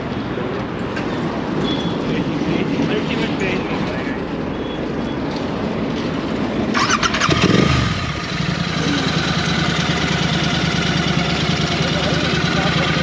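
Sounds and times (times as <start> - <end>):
low engine rumble: 0.0 - 13.0
motorcycle engine starting and idling: 6.6 - 13.0.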